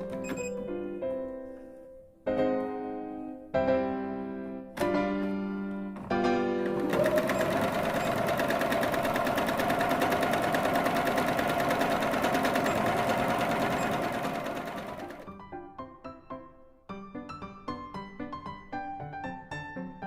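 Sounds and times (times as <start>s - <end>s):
sewing machine stitching: 6.5s - 15.3s.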